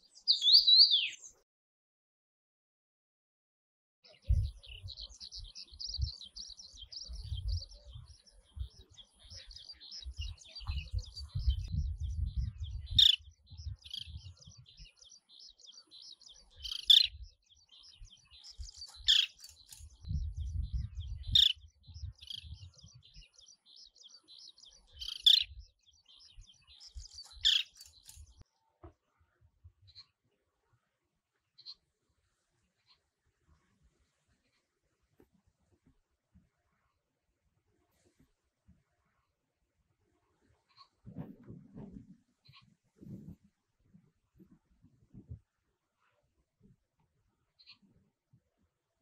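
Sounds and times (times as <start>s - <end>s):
sharp bird calls: 0.0s - 1.4s, 15.8s - 17.2s, 17.9s - 20.7s, 21.3s - 22.6s, 24.4s - 25.6s, 26.2s - 28.4s
birds chattering: 0.2s - 1.3s, 9.0s - 28.4s.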